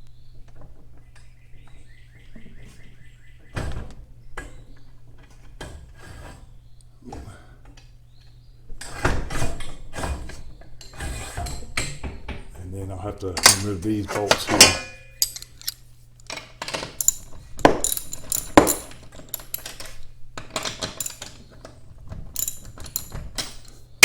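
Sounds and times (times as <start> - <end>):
metal clanks and knocks: 13.2 - 23.9
dense metallic clatter: 13.4 - 15.8, 16.7 - 21.4, 22.4 - 23.7.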